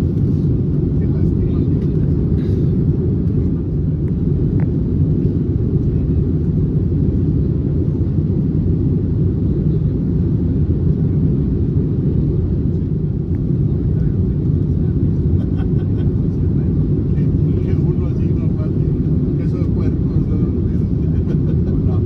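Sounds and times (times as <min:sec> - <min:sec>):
airliner cabin engine rumble: 0:00.0 - 0:22.0.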